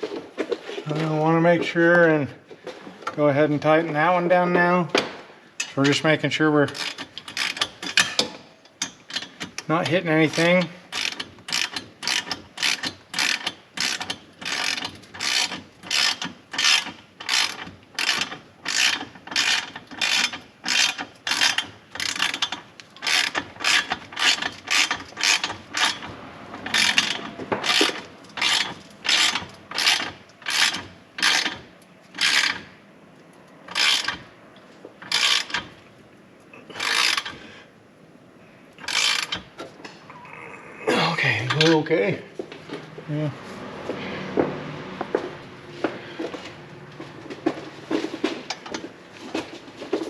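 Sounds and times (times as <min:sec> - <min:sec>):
ratchet wrench clicking: 0:10.4 - 0:26.1, 0:32.2 - 0:32.6, 0:33.7 - 0:34.2, 0:35.0 - 0:35.6, 0:36.8 - 0:37.4, 0:38.8 - 0:39.4.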